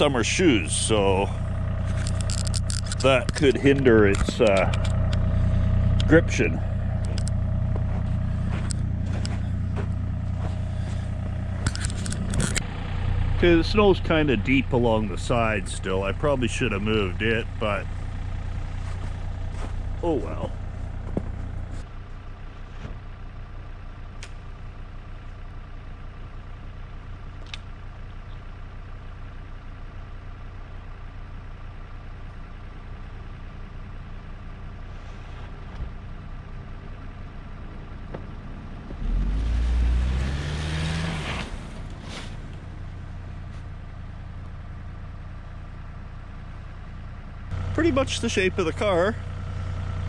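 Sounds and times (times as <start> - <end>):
car engine revving: 0.0 - 21.8, 38.6 - 43.4
car engine idling: 0.0 - 50.0.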